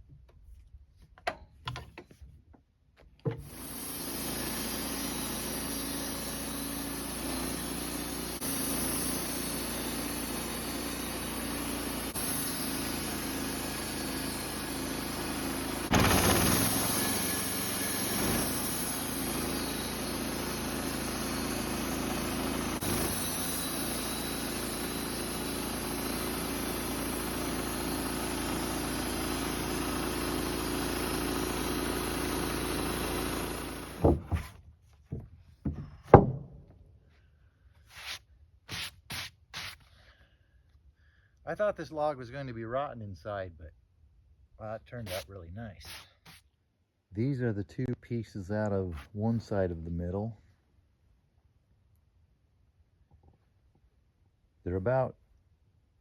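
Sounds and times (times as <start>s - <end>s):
sawmill engine running: 3.4s - 34.5s.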